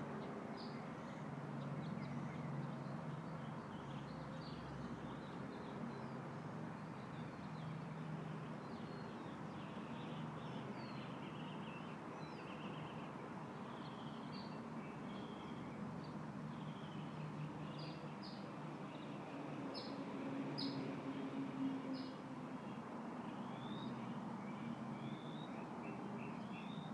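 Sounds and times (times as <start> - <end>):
small birds chirping: 8.6 - 20.0.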